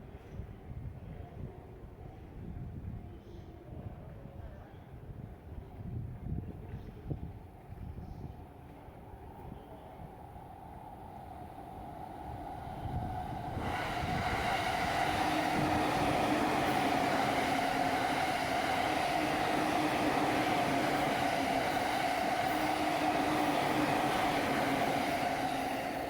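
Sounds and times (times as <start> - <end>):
electric train passing: 9.1 - 26.0.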